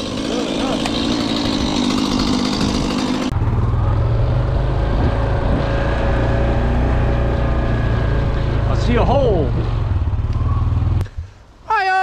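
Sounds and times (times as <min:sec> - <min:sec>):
chainsaw running: 0:00.0 - 0:07.8.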